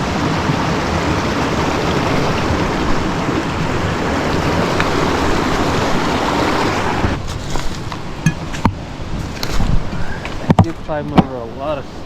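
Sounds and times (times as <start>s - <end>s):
creek rushing: 0.0s - 12.0s.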